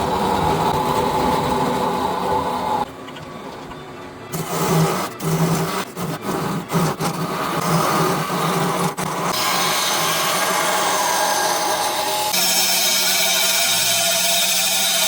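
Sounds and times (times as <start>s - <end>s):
power tool working wood: 9.3s - 15.0s.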